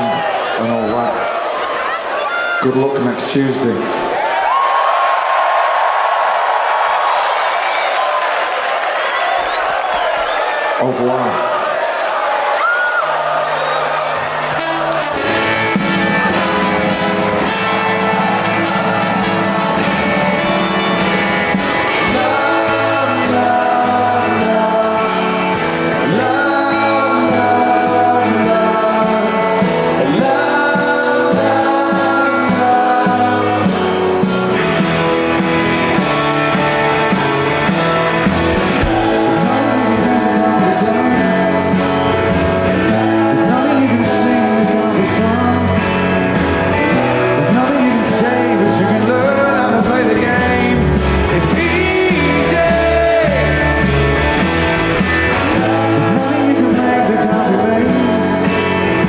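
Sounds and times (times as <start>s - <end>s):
rock band playing live: 12.4s - 59.0s
electric guitars: 12.6s - 59.0s
person singing: 21.9s - 34.3s, 38.6s - 54.0s, 55.3s - 59.0s.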